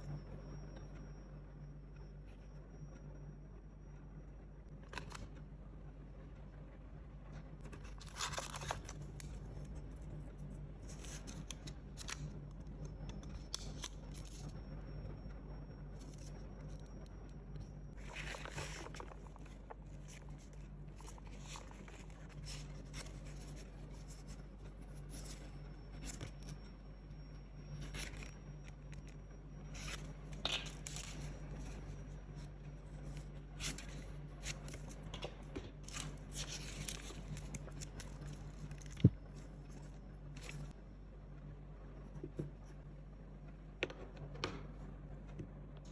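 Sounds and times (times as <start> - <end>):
faint low hum: 0.0 - 45.9
packaging rustling and scraping: 17.9 - 26.6, 27.7 - 40.8.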